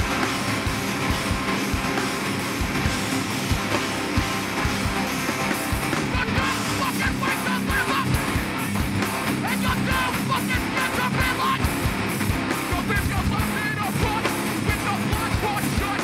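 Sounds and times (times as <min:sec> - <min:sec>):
bass guitar: 0:00.0 - 0:16.0
distorted guitars: 0:00.0 - 0:16.0
pounding drums: 0:00.0 - 0:16.0
shouted vocals: 0:06.0 - 0:08.8, 0:09.4 - 0:11.8.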